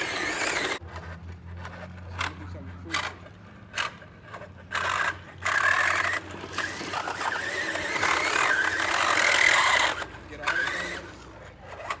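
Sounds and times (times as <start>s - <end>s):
harsh rough scraping: 0.0s - 12.0s.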